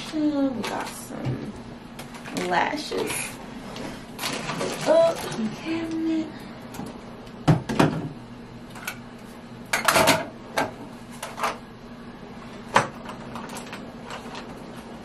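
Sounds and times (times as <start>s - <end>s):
household items clattering: 4.2s - 5.6s
knocks on cabinet: 7.4s - 8.1s.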